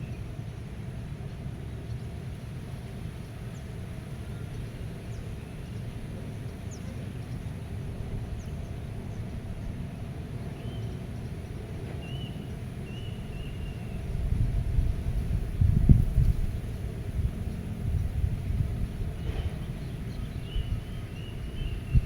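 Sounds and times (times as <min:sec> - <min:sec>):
low wind rumble: 0:13.1 - 0:22.0.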